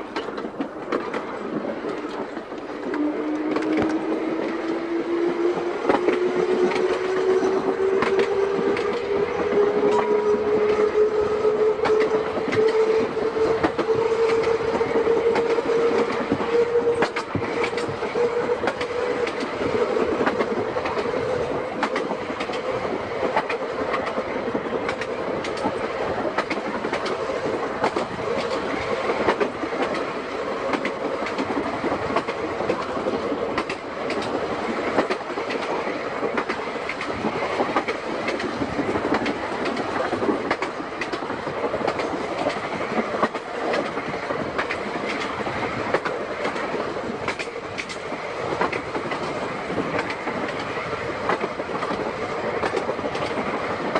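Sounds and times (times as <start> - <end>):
tram wheels clicking over rail joints: 0.0 - 53.9
tram whine: 0.0 - 53.9.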